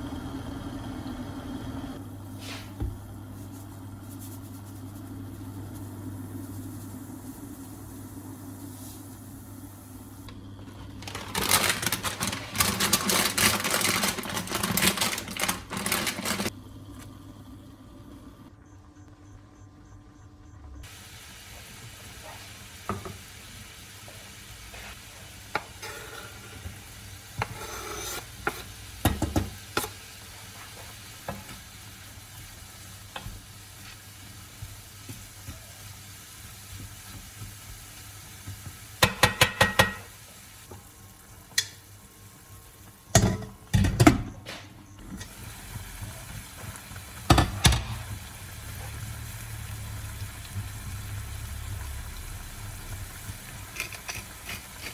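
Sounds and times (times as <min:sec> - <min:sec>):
food sizzling in a pan: 0:20.8 - 0:43.4, 0:45.0 - 0:54.9.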